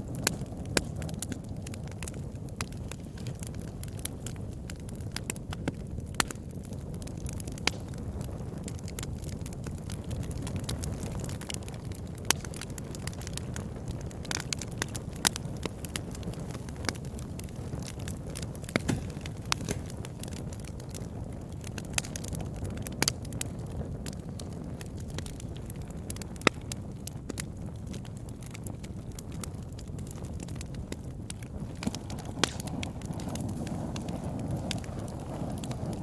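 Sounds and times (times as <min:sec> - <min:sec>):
burning wood crackling and popping: 0:00.0 - 0:36.0
low rumble of flames: 0:00.0 - 0:36.0.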